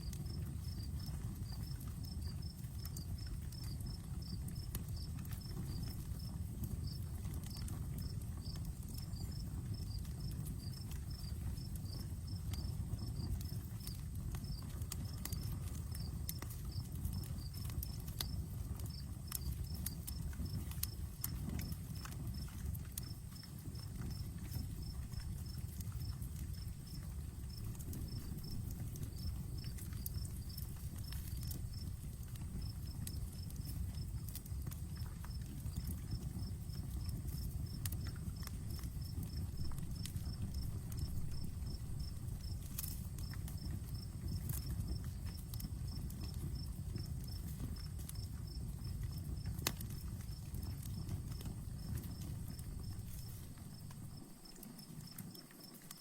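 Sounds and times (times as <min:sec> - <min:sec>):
campfire crackling and popping: 0:00.0 - 0:56.0
insect chirping: 0:00.2 - 0:02.2, 0:22.0 - 0:34.2, 0:35.3 - 0:45.3, 0:49.9 - 0:56.0.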